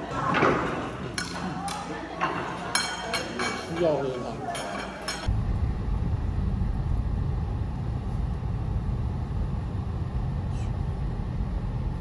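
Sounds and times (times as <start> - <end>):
car engine rumble: 5.3 - 12.0.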